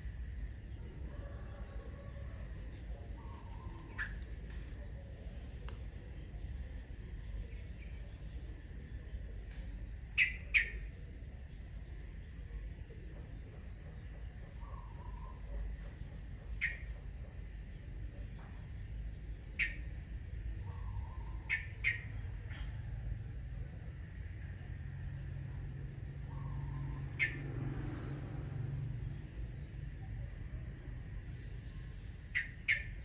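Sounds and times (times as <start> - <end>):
faint bird chirps: 0.3 - 28.4, 29.1 - 33.0.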